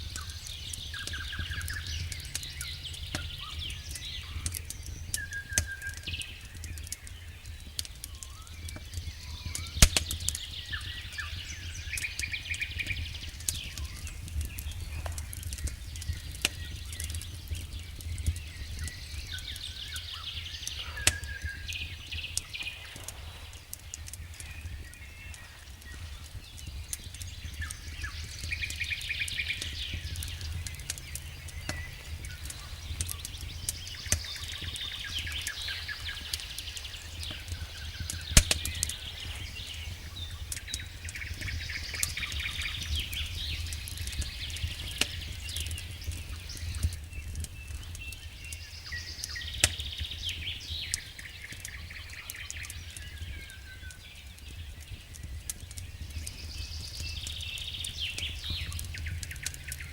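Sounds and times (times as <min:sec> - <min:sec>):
wood fire crackling and popping: 0:00.0 - 0:59.9
steady low rumble: 0:13.0 - 0:46.8.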